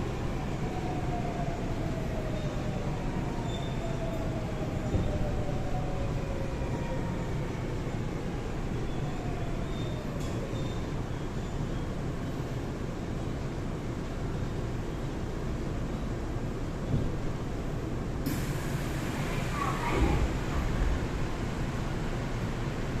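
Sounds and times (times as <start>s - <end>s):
train inverter whine: 0.0s - 23.0s
train running rumble: 16.7s - 23.0s.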